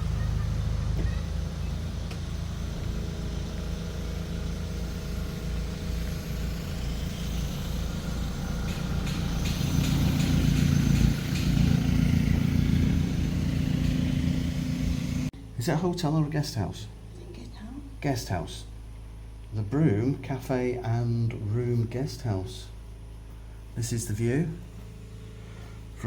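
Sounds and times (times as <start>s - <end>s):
car engine running: 0.0s - 15.3s.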